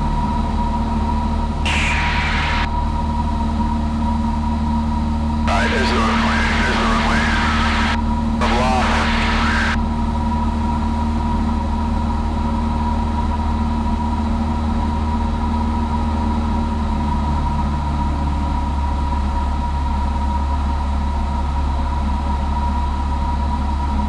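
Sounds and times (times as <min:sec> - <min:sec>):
steady high tone: 0:01.7 - 0:02.8, 0:05.5 - 0:09.8.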